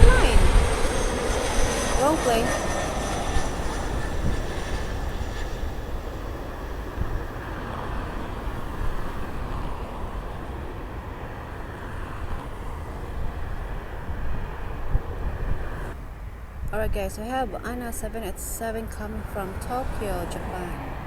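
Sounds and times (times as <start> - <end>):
jet engine rushing: 0.0 - 16.0
wind rumbling on microphone: 0.0 - 21.0.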